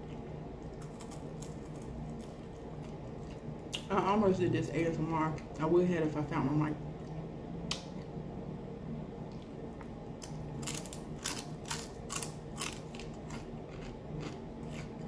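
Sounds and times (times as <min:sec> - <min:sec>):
crunchy food chewing: 0:00.0 - 0:03.9, 0:09.3 - 0:15.0
low steady hum: 0:00.0 - 0:15.0.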